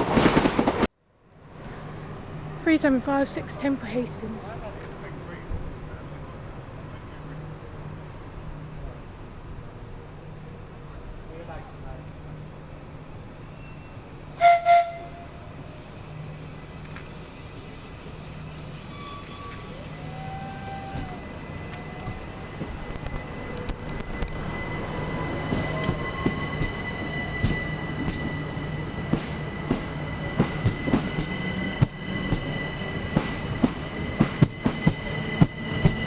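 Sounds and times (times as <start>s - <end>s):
high-pitched squeal: 15.9s - 36.0s
train wheels clicking over joints: 16.5s - 36.0s.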